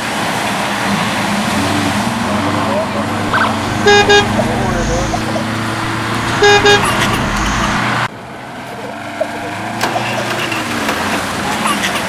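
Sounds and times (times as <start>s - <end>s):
engine hum: 0.0s - 12.0s
vehicle horn beeping: 0.8s - 8.1s.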